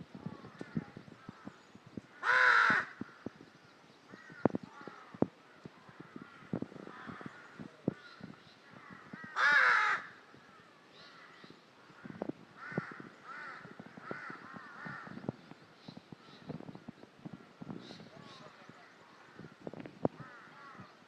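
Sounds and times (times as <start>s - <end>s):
crow cawing: 2.2s - 3.2s, 8.8s - 10.2s, 12.0s - 15.2s, 20.2s - 20.9s.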